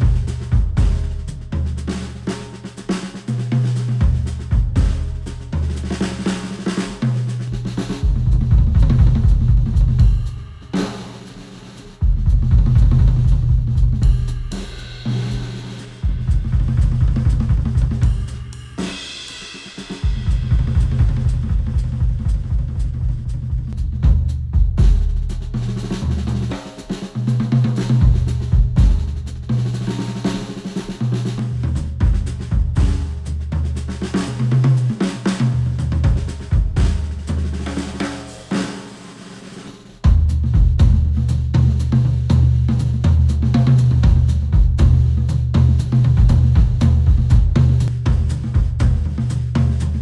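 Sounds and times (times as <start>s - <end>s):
instrumental music with drums and bass: 0.0s - 50.0s
bass line: 8.0s - 10.4s, 12.0s - 14.6s, 40.1s - 50.0s.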